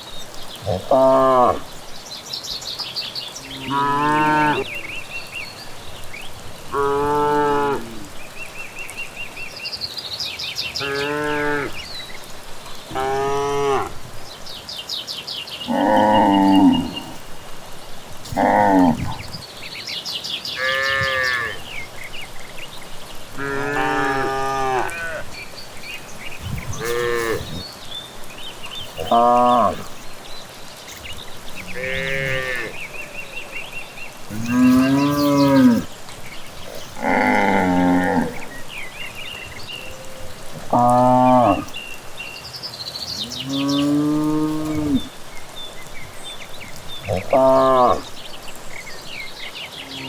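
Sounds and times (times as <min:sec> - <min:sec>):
faint birds chirping: 0:00.0 - 0:50.0
cattle mooing: 0:12.9 - 0:14.0, 0:18.3 - 0:19.4, 0:23.4 - 0:25.3, 0:26.4 - 0:27.6, 0:29.0 - 0:30.0, 0:31.6 - 0:33.0, 0:34.3 - 0:35.9, 0:36.9 - 0:38.5, 0:43.5 - 0:45.1.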